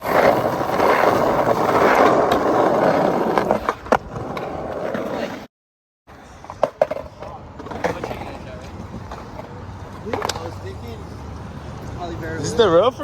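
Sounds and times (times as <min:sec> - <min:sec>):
skateboard wheels rolling on pavement: 0:00.0 - 0:05.5, 0:06.1 - 0:13.0
skateboard clacks: 0:06.1 - 0:11.4.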